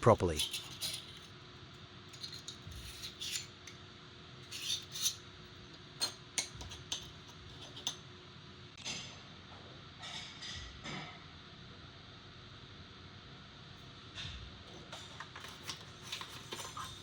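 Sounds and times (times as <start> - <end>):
rustling of small parts: 15.2 - 17.0.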